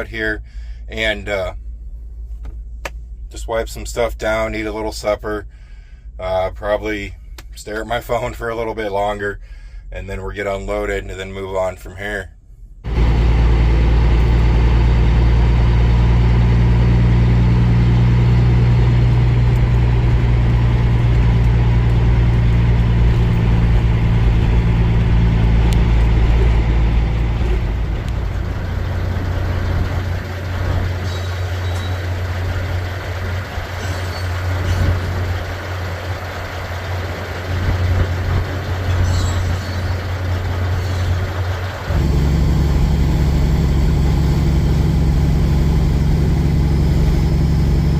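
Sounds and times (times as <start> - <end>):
truck diesel engine running: 12.8 - 47.9.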